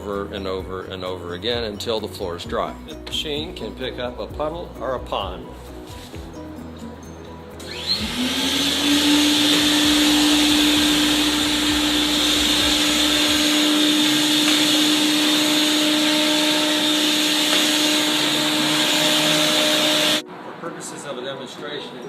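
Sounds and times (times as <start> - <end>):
vacuum motor whine and hiss: 7.6 - 20.2.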